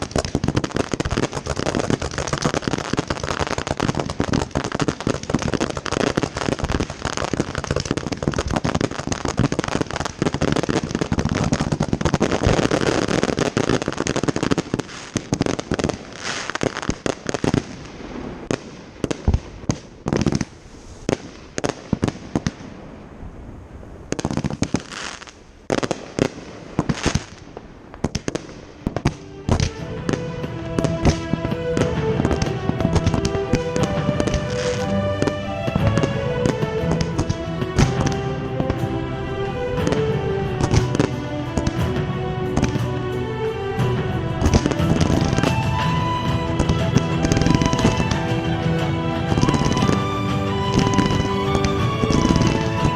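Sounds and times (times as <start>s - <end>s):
fireworks bangs and crackling: 0.0s - 23.4s, 24.0s - 52.9s
music with sustained notes: 29.0s - 52.9s.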